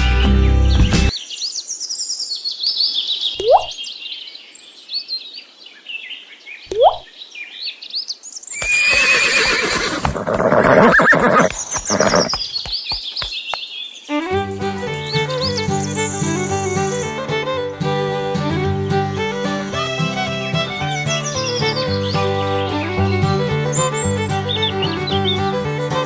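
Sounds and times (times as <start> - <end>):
birds chirping: 0.2 - 25.9
horse neighing: 8.6 - 12.4
short rising calls: 8.6 - 13.4.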